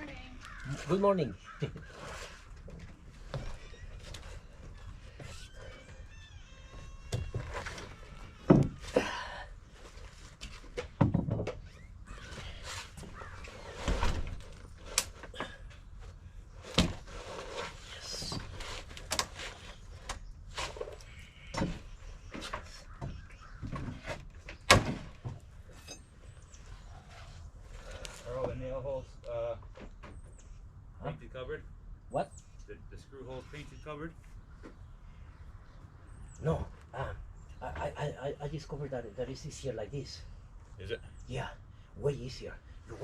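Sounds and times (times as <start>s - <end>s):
knocks and thuds on wood: 8.4s - 8.9s, 10.7s - 11.7s.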